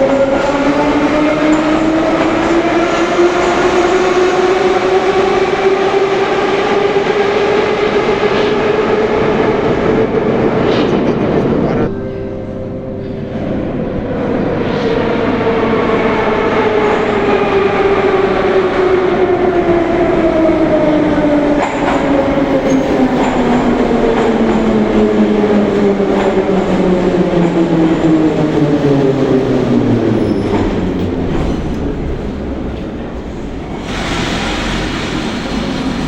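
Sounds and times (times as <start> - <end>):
train wheels rumbling: 13.6 - 36.0.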